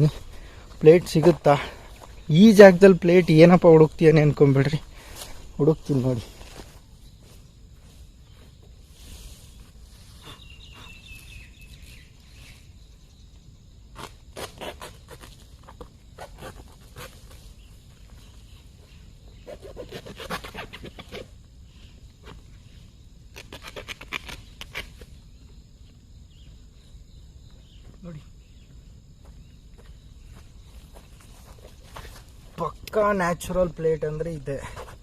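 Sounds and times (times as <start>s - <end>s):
bird chirp: 8.2s - 13.6s.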